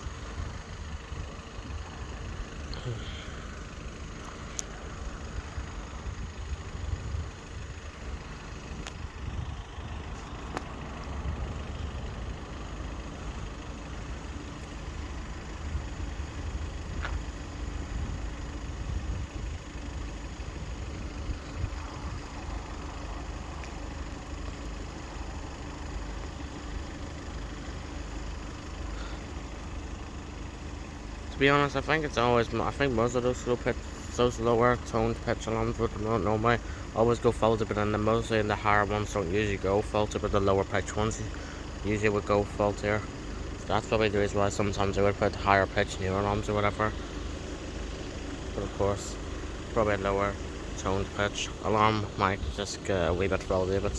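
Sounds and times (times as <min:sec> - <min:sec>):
vehicle engines idling: 0:00.0 - 0:53.9
wind rumble on microphone: 0:06.0 - 0:07.8, 0:17.8 - 0:19.7.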